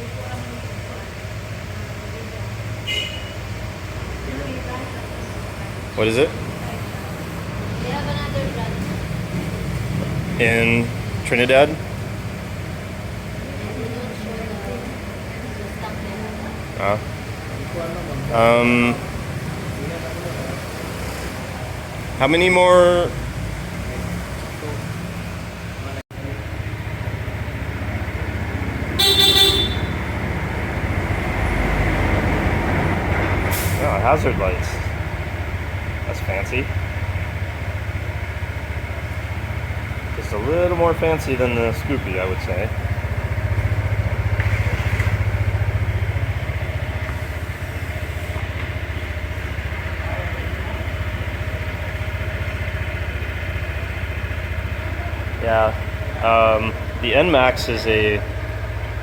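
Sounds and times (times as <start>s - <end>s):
scooter engine idling: 0.0s - 59.0s
scooter horn beep: 2.8s - 3.6s, 28.9s - 30.2s.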